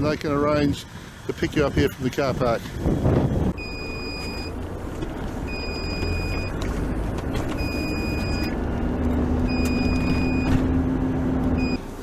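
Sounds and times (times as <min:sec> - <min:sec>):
vehicle engine running: 0:00.0 - 0:12.0
electronic warning beep: 0:03.6 - 0:04.6, 0:05.5 - 0:06.6, 0:07.6 - 0:08.6, 0:09.5 - 0:10.6, 0:11.6 - 0:11.8.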